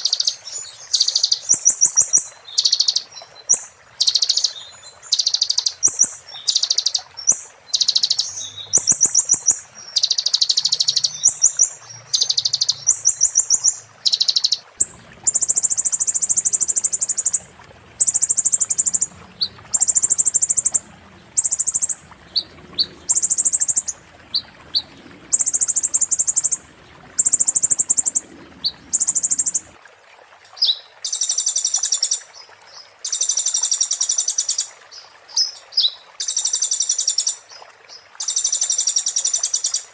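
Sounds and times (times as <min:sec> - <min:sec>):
songbird trilling: 0:04.0 - 0:26.6.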